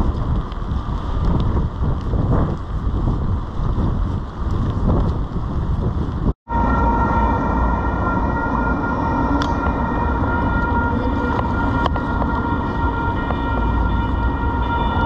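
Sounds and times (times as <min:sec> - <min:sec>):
street noise: 0:00.0 - 0:15.0
wind buffeting microphone: 0:00.0 - 0:15.0
light rail train whine: 0:06.5 - 0:15.0.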